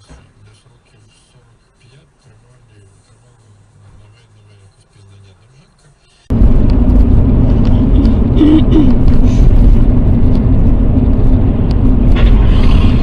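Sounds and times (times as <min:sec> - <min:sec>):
car engine and road noise: 0:00.0 - 0:13.0
constant hum: 0:00.0 - 0:13.0.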